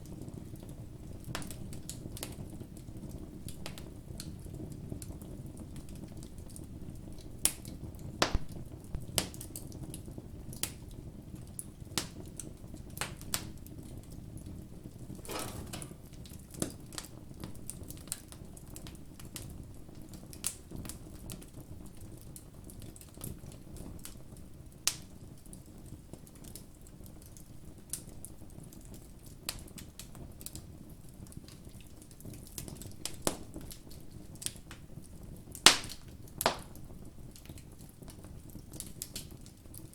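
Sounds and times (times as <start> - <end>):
flames rustling: 15.1 - 16.8
campfire crackling: 15.2 - 16.4.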